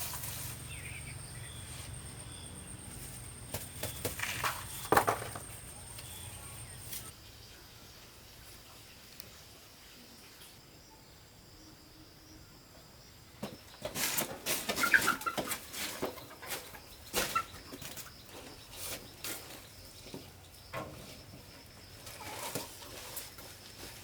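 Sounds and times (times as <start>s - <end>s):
chickens clucking: 0.0s - 7.1s, 14.2s - 19.6s, 22.0s - 23.2s
rustling and wing-flapping: 2.9s - 7.1s, 13.8s - 20.2s.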